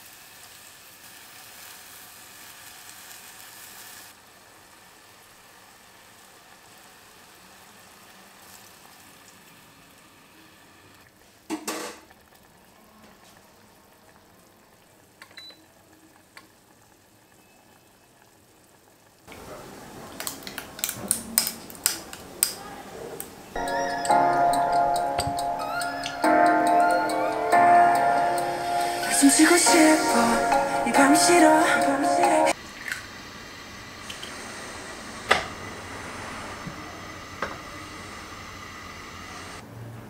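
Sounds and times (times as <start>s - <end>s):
meat sizzling in a pot: 0.0s - 12.6s.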